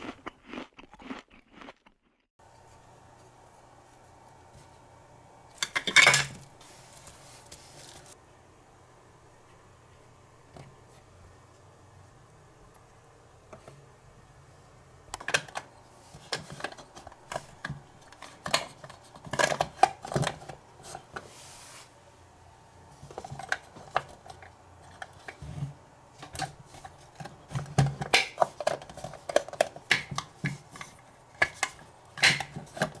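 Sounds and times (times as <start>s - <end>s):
toy dishes clicking and clattering: 5.6s - 6.4s, 18.1s - 20.6s, 26.2s - 33.0s.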